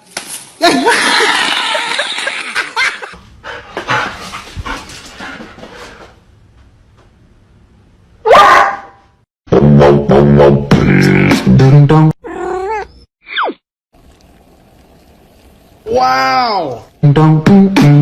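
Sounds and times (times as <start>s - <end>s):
dog barking: 8.3s - 9.0s.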